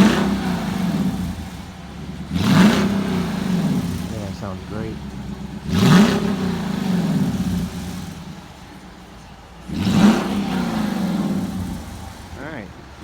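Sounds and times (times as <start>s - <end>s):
engine revving and idling: 0.0s - 13.0s.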